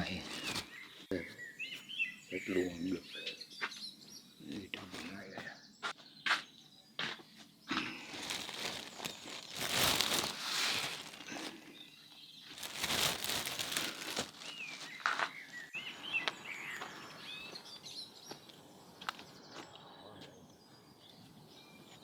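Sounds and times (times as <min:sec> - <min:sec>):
small birds chirping: 0:00.0 - 0:22.0
rustling noise: 0:07.7 - 0:11.8, 0:12.4 - 0:15.7.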